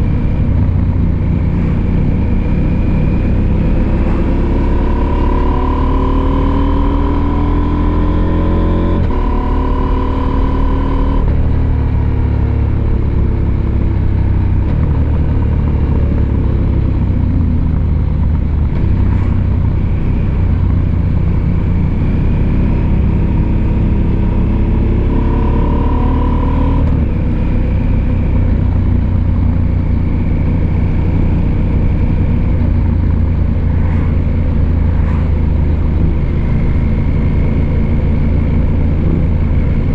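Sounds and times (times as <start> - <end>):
steady low rumble: 0.0 - 5.0, 10.1 - 22.4, 26.8 - 39.9.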